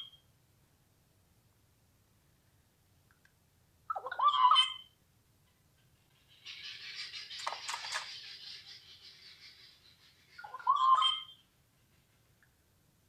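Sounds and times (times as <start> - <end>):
bird calling harshly: 3.9 - 4.9, 6.3 - 11.4.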